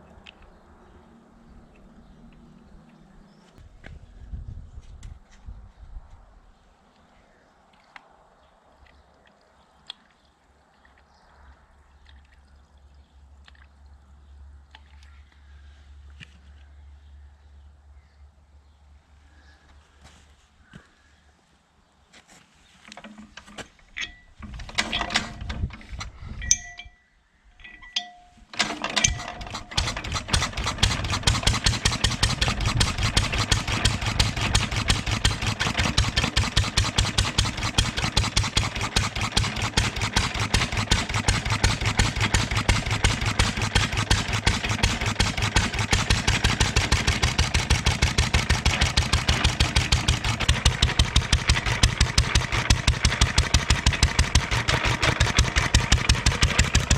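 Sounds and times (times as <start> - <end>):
single-cylinder engine starting and running: 22.9 - 26.5, 28.5 - 56.9.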